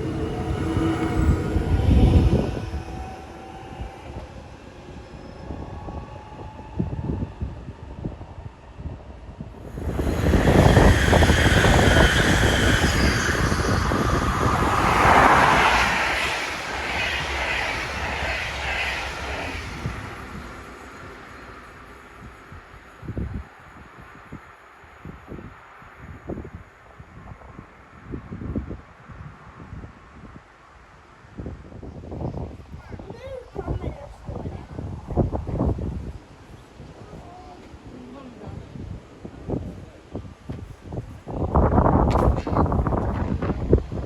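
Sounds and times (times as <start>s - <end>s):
low rumble: 0.0s - 21.2s, 41.9s - 44.0s
high motor whine: 0.0s - 22.3s
train wheels rushing on rails: 0.0s - 23.4s, 40.5s - 44.0s.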